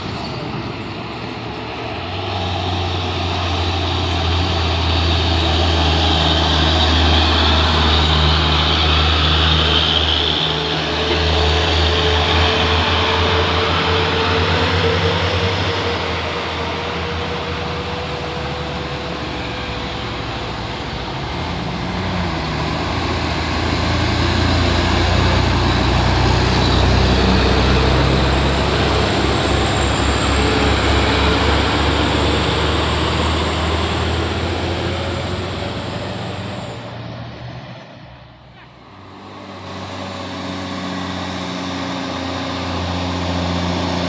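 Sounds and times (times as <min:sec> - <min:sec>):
heavy truck engine labouring: 0:00.0 - 0:44.0.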